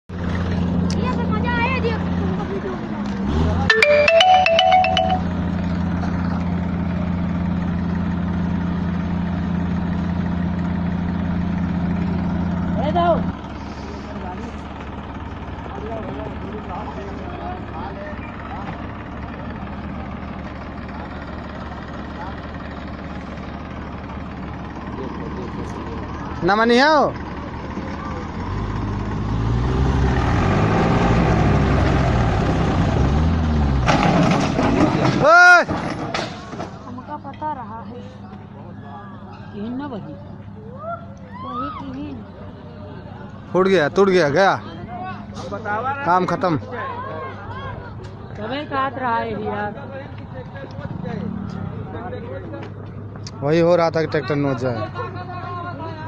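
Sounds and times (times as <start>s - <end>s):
mallet percussion jingle: 3.7s - 5.6s
tractor diesel engine idling: 3.7s - 29.3s.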